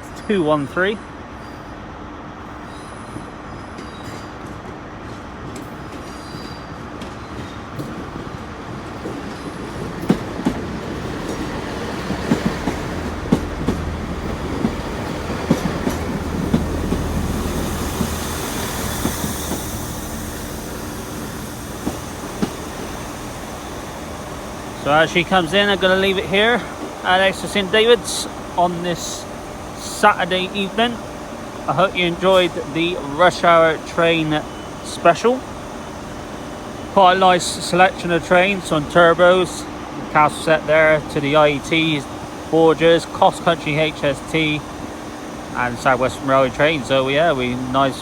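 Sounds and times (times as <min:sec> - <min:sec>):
train engine hum: 0:00.0 - 0:48.0
high wheel squeal: 0:05.8 - 0:07.6, 0:31.7 - 0:35.4
wheels clicking over rail joints: 0:09.0 - 0:19.4.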